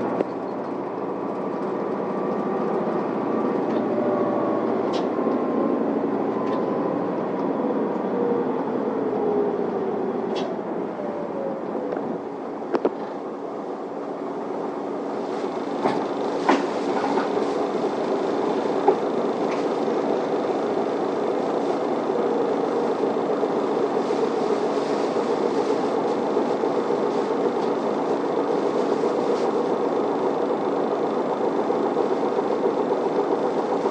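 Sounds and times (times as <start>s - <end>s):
bus engine hum: 0.0s - 33.9s.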